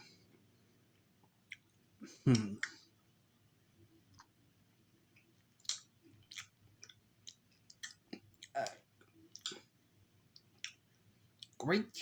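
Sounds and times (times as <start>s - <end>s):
person chewing: 1.5s - 2.8s, 5.1s - 9.7s, 10.4s - 11.6s
wet mouth clicks and smacks: 5.6s - 9.6s, 10.4s - 10.8s.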